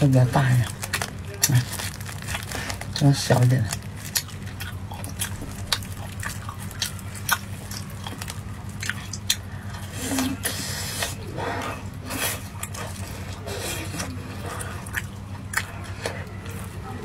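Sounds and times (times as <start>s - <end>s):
plastic gloves handling food: 0.0s - 8.8s
biting and chewing: 0.0s - 17.0s.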